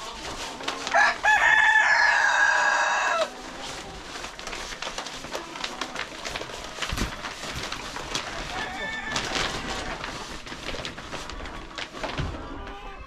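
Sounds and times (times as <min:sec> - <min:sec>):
chicken clucking: 0:00.0 - 0:13.0
rooster crowing: 0:00.9 - 0:03.3, 0:08.5 - 0:09.9.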